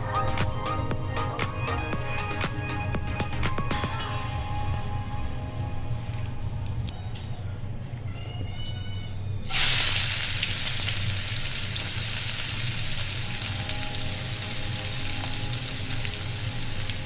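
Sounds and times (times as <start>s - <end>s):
food sizzling in hot oil: 9.5s - 17.0s.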